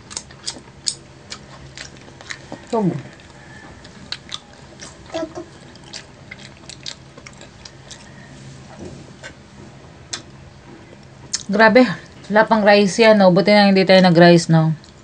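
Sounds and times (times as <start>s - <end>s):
chewing clicks: 0.0s - 8.2s, 10.1s - 12.2s
swallowing: 1.3s - 8.4s.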